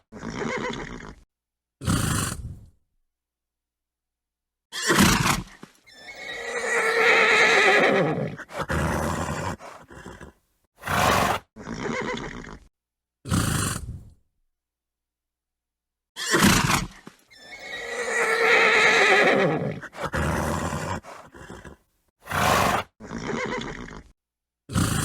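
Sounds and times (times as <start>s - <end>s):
horse whinnying: 0.0s - 1.2s, 4.7s - 12.7s, 16.2s - 24.1s
horse snorting: 1.8s - 2.7s, 4.9s - 12.7s, 13.3s - 14.1s, 16.2s - 24.1s, 24.7s - 25.0s.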